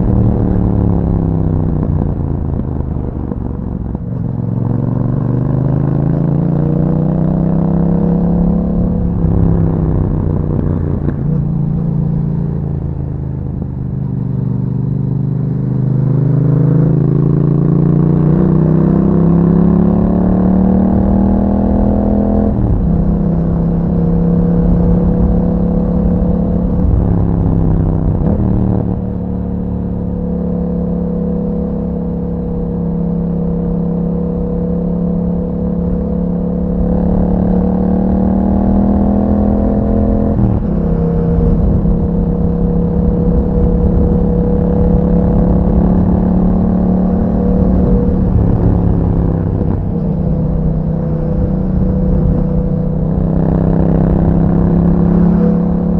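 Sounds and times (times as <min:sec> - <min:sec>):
motorcycle engine running: 0:20.9 - 0:55.9.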